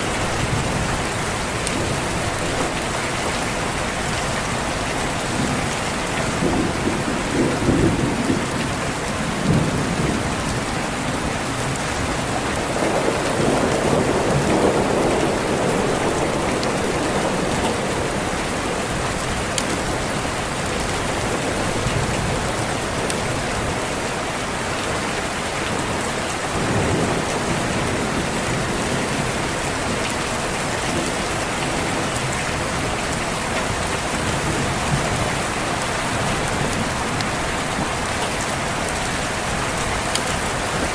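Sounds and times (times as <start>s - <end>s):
steady rain: 0.0s - 40.9s
low thunder rolls: 6.3s - 20.1s.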